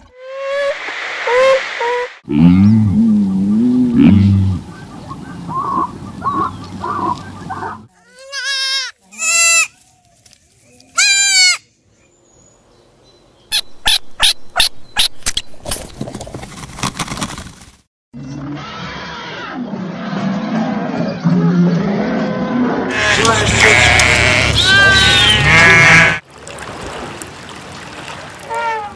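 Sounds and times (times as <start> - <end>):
bleat-like animal calls: 8.0 - 9.7, 11.0 - 11.6, 22.9 - 26.2.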